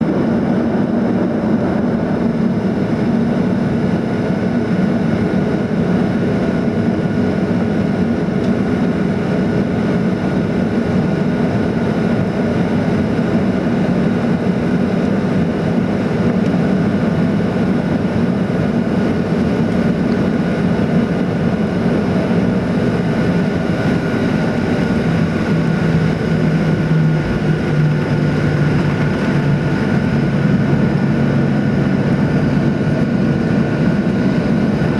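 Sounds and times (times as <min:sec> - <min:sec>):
airplane cabin engine roar: 0:00.0 - 0:34.9
engine hum and whine: 0:00.0 - 0:34.9
low hum: 0:21.3 - 0:34.9.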